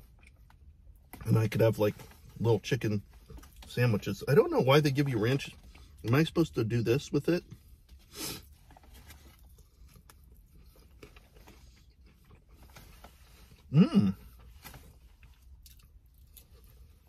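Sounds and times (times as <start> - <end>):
man chewing food: 8.4 - 14.5, 15.1 - 17.0
man humming mmm: 13.7 - 14.2.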